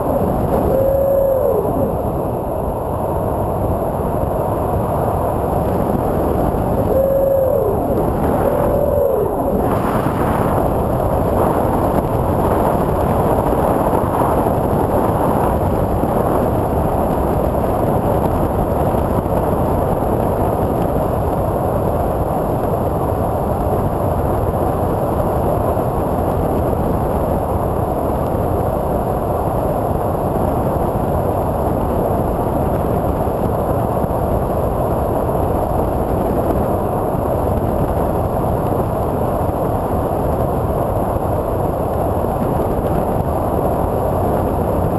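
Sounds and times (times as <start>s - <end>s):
faint high motor whine: 0.0s - 24.0s
model plane propellers and wind: 0.0s - 44.9s.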